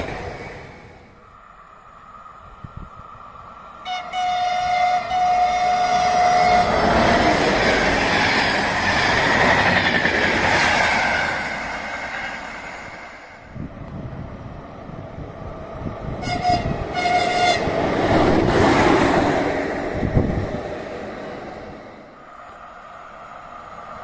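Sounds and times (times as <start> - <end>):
train rushing past: 0.0 - 24.0
train horn: 3.8 - 6.9, 16.2 - 17.7.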